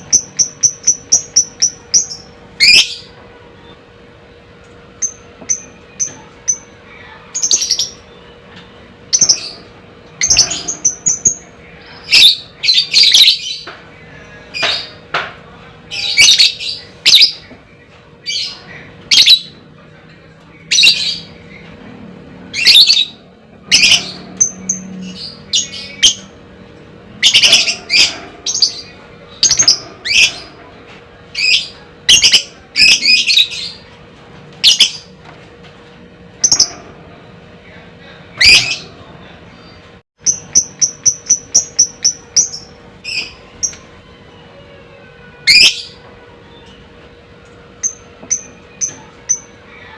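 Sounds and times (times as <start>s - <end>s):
lovebird squawking: 27.2s - 30.5s.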